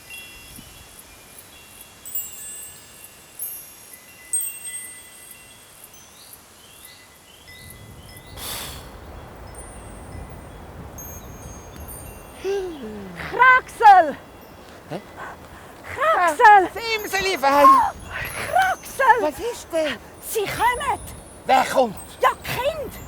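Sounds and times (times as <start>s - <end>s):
wind chimes tinkling: 0.0s - 23.0s.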